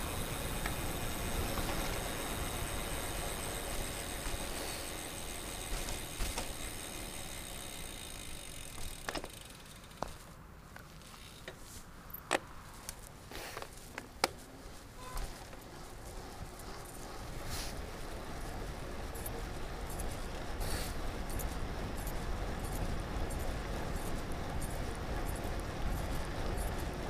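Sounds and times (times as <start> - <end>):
bicycle clicks and rattles: 0.0 - 27.0
bicycle rolling noise: 0.0 - 27.0
wind: 0.0 - 27.0.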